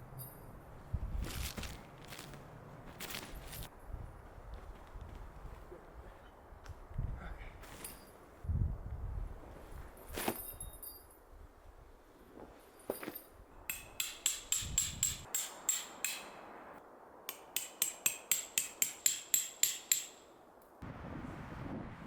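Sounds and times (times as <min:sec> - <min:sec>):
hammer striking metal stake: 0:13.7 - 0:16.5, 0:17.3 - 0:20.4.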